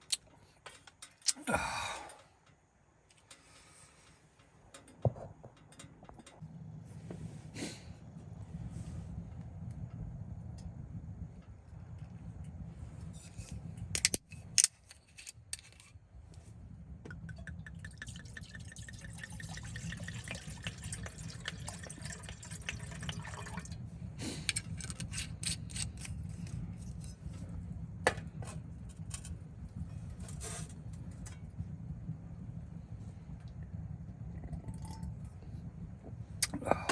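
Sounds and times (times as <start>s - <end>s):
liquid pouring into container: 17.3s - 23.8s, 34.4s - 35.2s.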